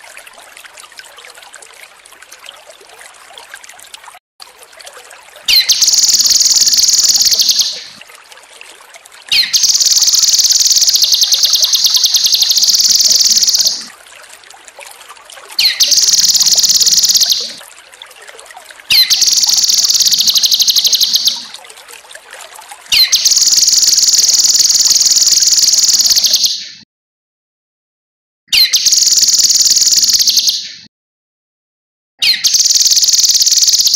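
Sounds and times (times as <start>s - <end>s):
water trickling: 0.0s - 26.4s, 28.8s - 30.3s, 32.5s - 33.9s
songbird singing high trills: 5.5s - 7.9s, 9.3s - 13.9s, 15.6s - 17.6s, 18.9s - 21.5s, 22.9s - 26.6s, 32.2s - 33.9s.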